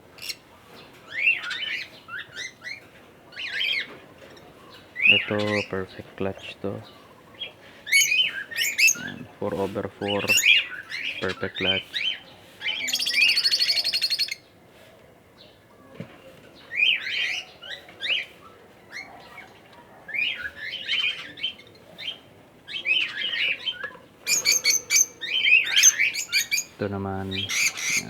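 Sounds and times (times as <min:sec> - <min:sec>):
parrots rattling chatter: 0:07.9 - 0:09.2, 0:22.8 - 0:28.0.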